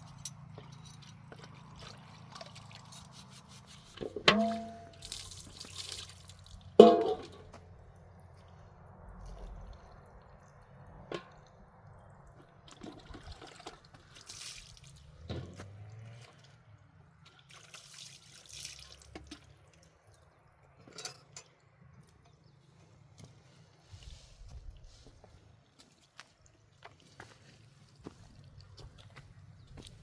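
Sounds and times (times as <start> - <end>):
faint water splashing and dripping: 0.2 - 20.8.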